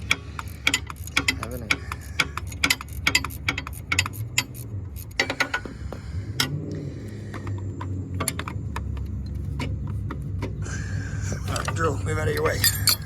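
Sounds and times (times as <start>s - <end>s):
ratchet wrench clicking: 0.0s - 5.7s, 11.5s - 13.0s.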